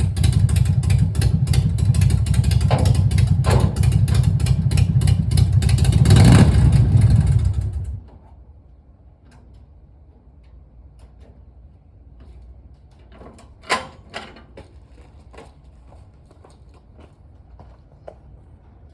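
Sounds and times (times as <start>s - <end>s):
motorcycle engine revving: 0.0s - 8.0s
sharp metallic clunks: 2.6s - 4.2s.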